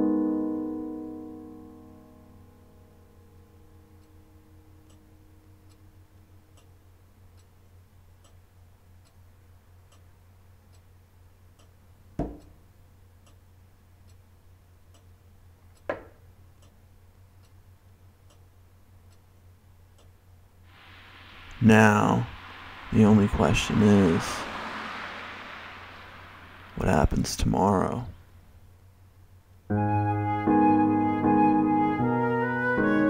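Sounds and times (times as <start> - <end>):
piano notes: 0.0 - 4.7
low steady hum: 0.0 - 29.7
clock ticking: 3.3 - 20.4
sharp knocks: 12.2 - 12.5.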